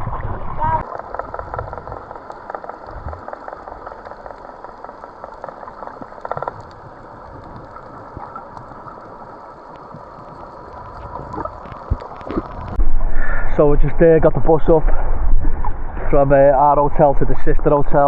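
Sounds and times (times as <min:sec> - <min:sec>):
fizzing crackling water: 0:00.0 - 0:12.8.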